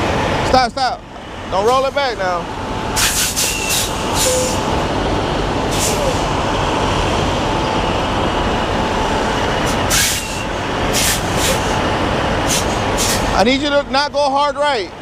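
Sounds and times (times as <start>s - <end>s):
diesel truck engine rumbling: 0.0s - 15.0s
short air hisses: 3.0s - 4.6s, 5.7s - 6.2s, 9.7s - 11.7s, 12.5s - 13.3s.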